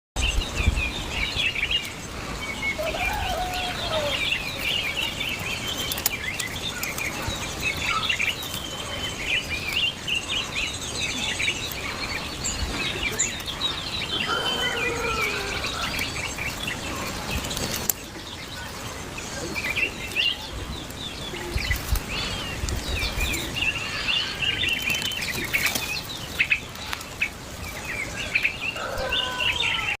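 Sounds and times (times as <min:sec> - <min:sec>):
small birds chirping: 0:00.2 - 0:30.0
lower bird call: 0:11.9 - 0:16.2.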